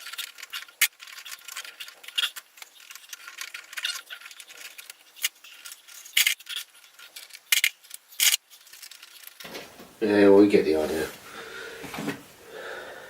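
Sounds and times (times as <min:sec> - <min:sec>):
brick pieces scraping and rattling: 0:00.0 - 0:09.6.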